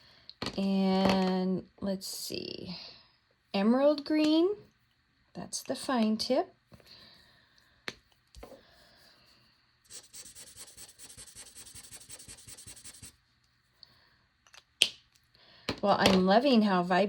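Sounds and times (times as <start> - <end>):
marker scribbling on paper: 9.9 - 13.2.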